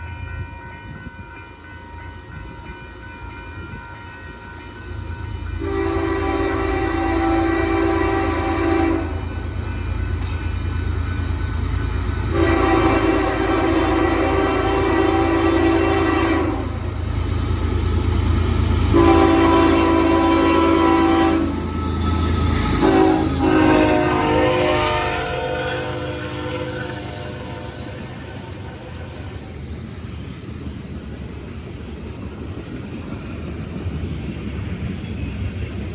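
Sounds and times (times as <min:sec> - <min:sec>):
freight train rumble: 0:00.0 - 0:35.9
locomotive air horn: 0:05.6 - 0:09.4, 0:12.3 - 0:16.9, 0:18.8 - 0:28.9.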